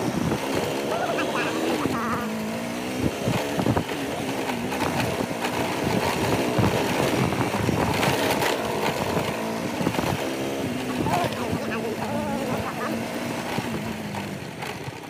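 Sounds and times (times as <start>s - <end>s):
motorcycle engine running: 0.0s - 15.0s
knocks and rattles: 3.0s - 15.0s.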